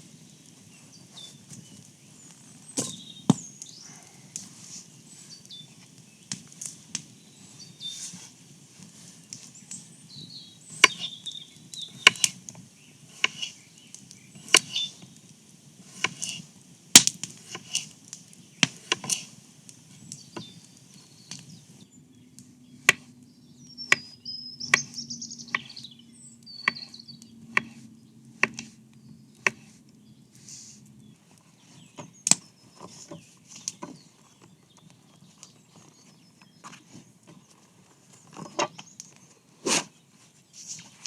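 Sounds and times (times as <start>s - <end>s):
bird chirping: 0.1s - 4.1s, 5.1s - 6.3s, 7.2s - 8.2s, 9.3s - 15.2s, 20.0s - 30.4s, 31.0s - 39.4s
wood being chopped: 2.8s - 3.5s, 10.8s - 11.1s, 12.0s - 12.4s, 13.2s - 13.5s, 14.4s - 14.9s, 15.9s - 16.4s, 17.0s - 17.9s, 18.6s - 19.3s, 26.6s - 26.9s, 28.4s - 28.7s, 29.4s - 29.7s.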